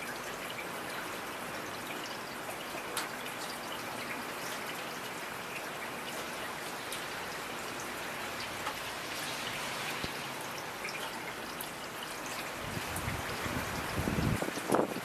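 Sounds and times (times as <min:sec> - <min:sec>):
rain hiss: 0:00.0 - 0:15.0
raindrops tapping: 0:05.6 - 0:15.0.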